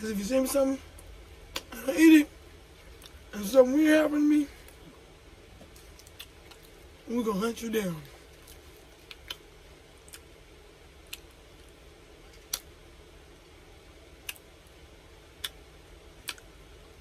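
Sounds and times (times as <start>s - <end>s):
faint steady hum: 0.0s - 17.0s
chewing mouth clicks: 5.6s - 6.8s, 8.4s - 10.3s, 11.1s - 11.4s, 15.4s - 15.6s, 16.2s - 16.5s.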